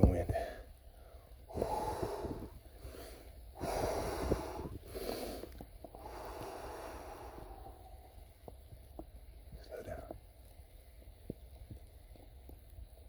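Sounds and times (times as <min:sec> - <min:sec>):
man breathing heavily: 0:00.3 - 0:08.4.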